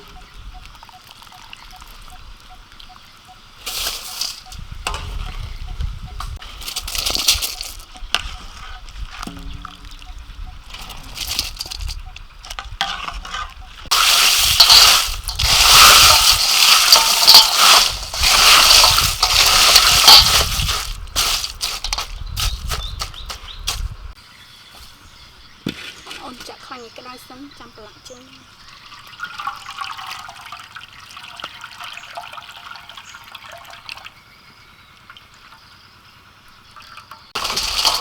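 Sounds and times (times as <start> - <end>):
water sloshing and splashing: 6.4 - 23.8, 36.8 - 38.0
water pouring: 12.8 - 22.7, 28.8 - 34.1, 36.8 - 38.0.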